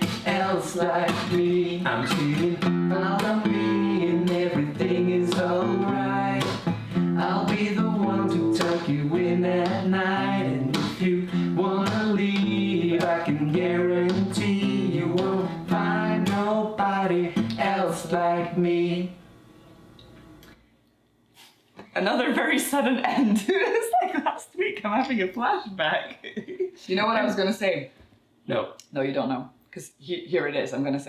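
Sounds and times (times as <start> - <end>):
acoustic guitar strumming: 0.0 - 19.1
person singing: 0.0 - 19.2.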